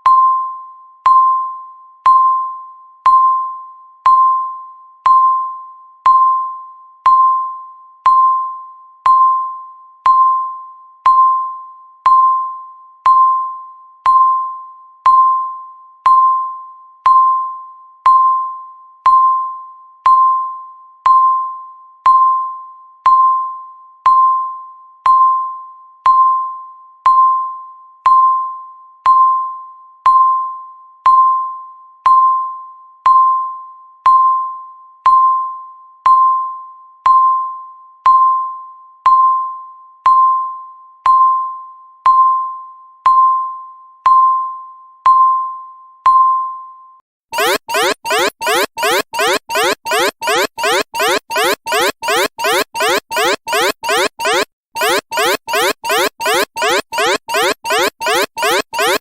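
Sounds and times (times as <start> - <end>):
countdown timer beeps: 47.4 - 59.0.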